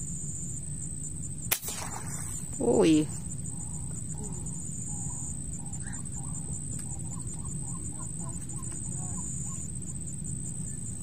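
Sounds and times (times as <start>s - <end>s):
bird calling: 2.2s - 9.8s.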